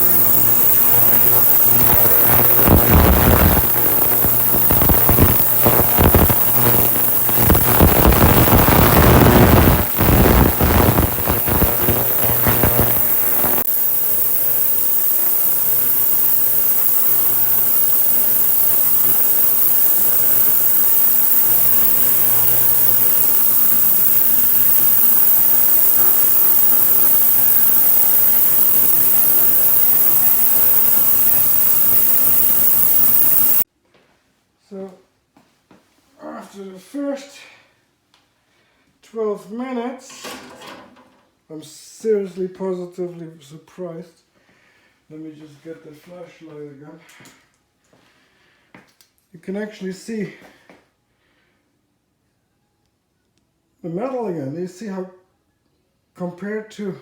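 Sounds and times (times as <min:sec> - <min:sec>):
ultrasonic cleaner hissing: 0:00.0 - 0:33.7.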